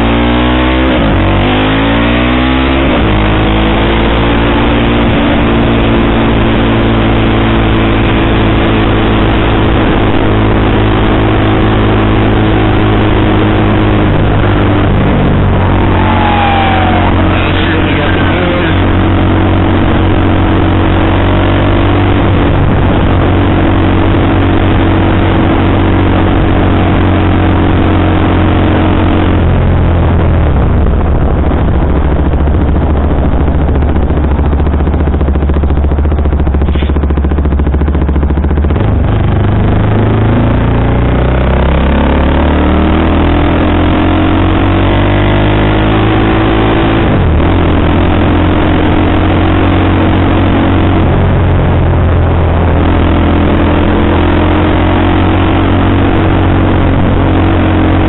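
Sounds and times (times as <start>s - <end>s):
motorcycle engine while riding: 0.0s - 58.0s.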